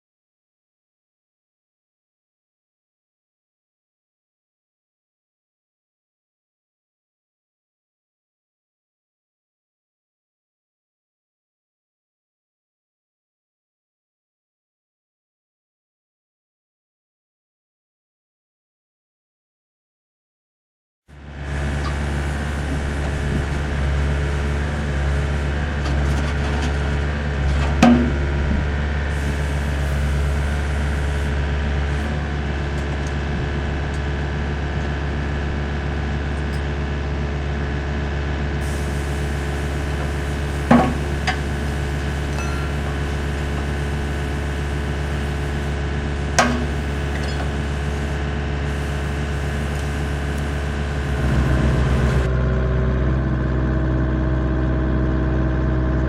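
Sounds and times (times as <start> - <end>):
excavator diesel engine running: 21.1 - 56.0
sharp metal clanks: 42.3 - 43.2.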